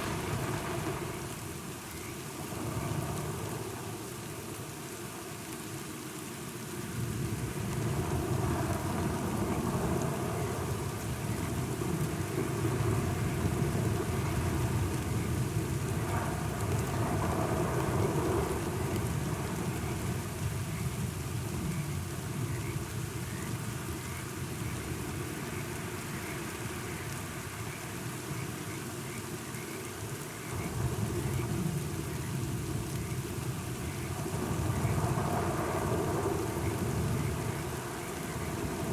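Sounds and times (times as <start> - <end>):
low rumble of thunder: 0.0 - 4.0, 7.0 - 25.6, 30.4 - 38.9
steady rain falling: 0.0 - 38.9.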